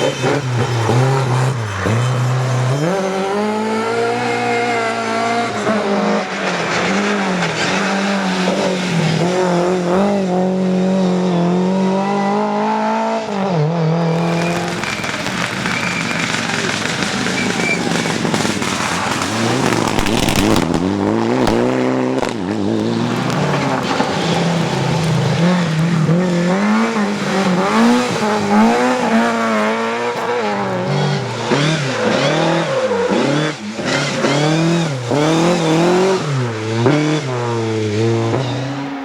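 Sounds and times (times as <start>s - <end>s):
rally car engine at full throttle: 0.0s - 39.0s
sharp cracks: 14.1s - 30.8s.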